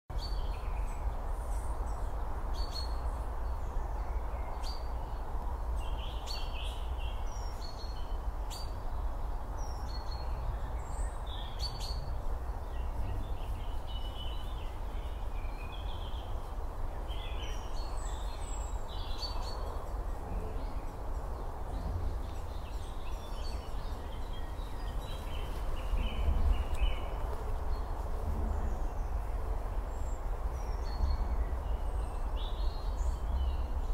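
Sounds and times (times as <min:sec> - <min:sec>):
small birds chirping: 0:00.1 - 0:33.9
low outdoor rumble: 0:10.4 - 0:33.9.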